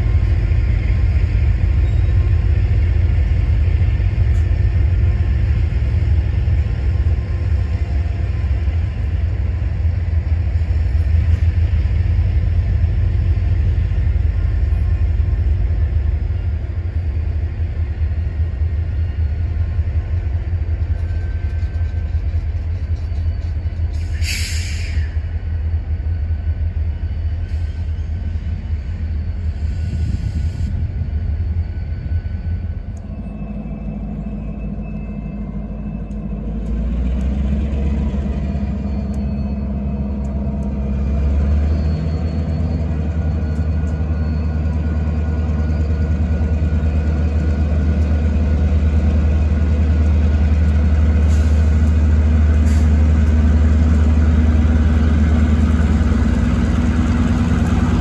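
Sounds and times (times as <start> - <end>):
diesel locomotive engines droning: 0.0 - 58.0
freight cars rumbling past: 29.5 - 58.0.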